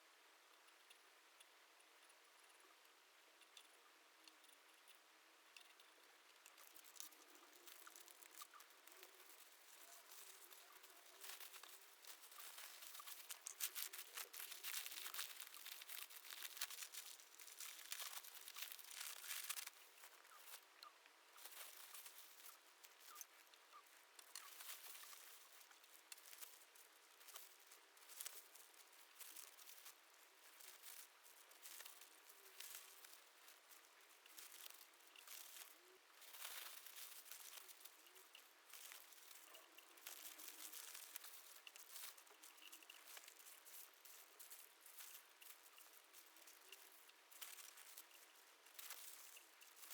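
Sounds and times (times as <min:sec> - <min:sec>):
materials crinkling and rustling: 0:06.3 - 0:49.9.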